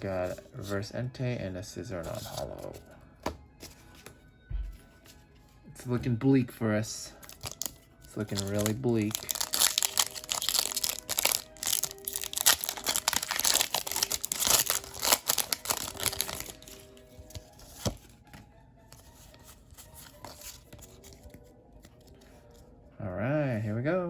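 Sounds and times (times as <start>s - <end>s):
foil wrapper tearing and crinkling: 7.2s - 16.8s
handling of cards: 7.2s - 22.8s.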